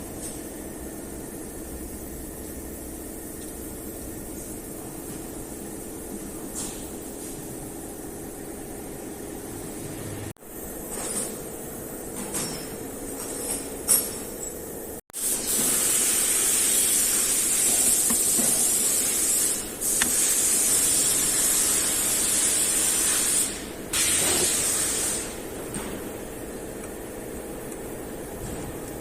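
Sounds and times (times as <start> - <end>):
pressurised spray hissing: 15.2 - 25.4.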